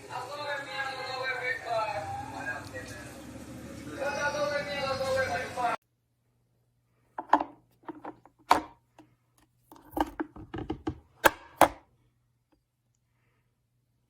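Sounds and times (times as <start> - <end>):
objects knocking and clicking: 7.2 - 9.1, 9.7 - 11.8.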